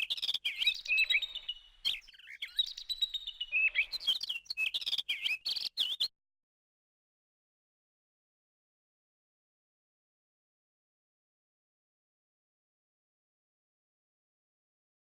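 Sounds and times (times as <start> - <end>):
birds chirping and twittering: 0.0 - 6.1.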